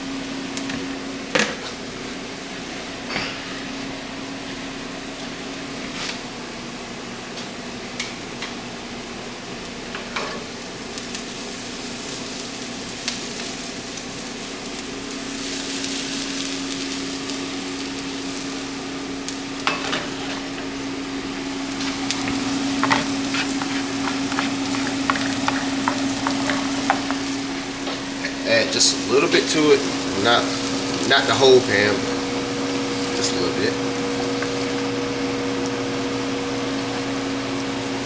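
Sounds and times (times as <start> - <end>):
eggs sizzling in a pan: 5.3 - 38.0
utensil tapping and scraping pan: 22.2 - 28.0.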